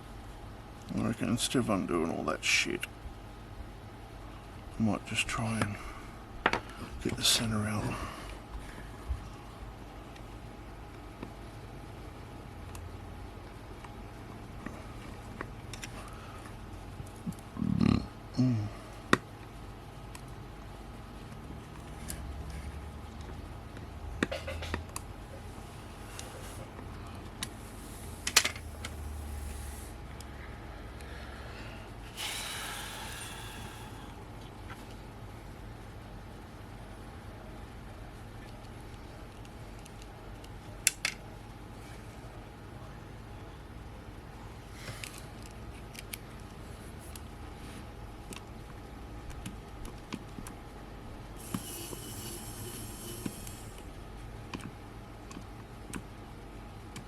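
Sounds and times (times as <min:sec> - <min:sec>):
low steady hum: 0:00.0 - 0:57.0
hissing scrape: 0:51.4 - 0:53.9.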